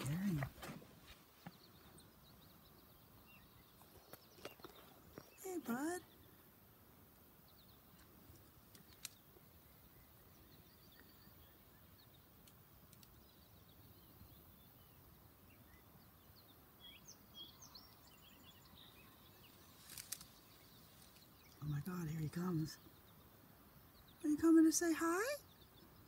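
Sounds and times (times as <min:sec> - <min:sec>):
distant bird chirps: 0:00.0 - 0:06.6.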